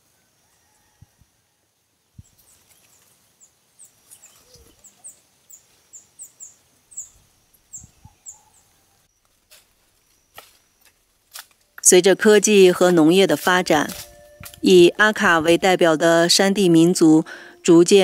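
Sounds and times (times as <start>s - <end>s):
birds chirping: 2.2s - 18.0s
faint steady high tone: 11.6s - 18.0s.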